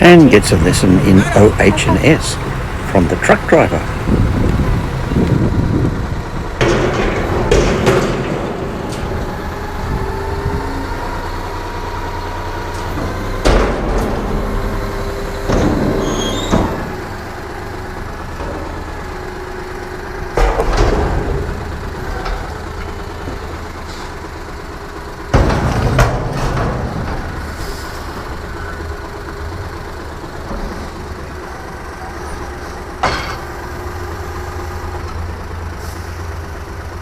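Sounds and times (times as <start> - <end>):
loud clanks and bangs: 0.0 - 9.8, 12.8 - 17.2, 20.2 - 23.7, 25.2 - 28.2
truck engine rumbling: 0.0 - 37.0.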